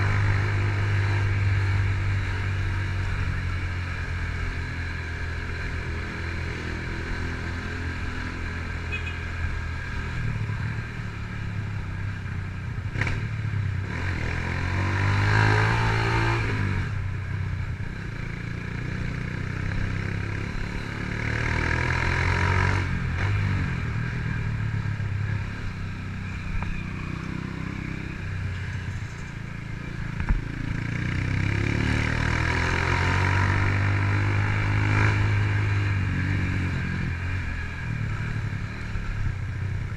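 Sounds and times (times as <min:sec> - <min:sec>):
motorcycle engine accelerating: 0:17.8 - 0:39.9.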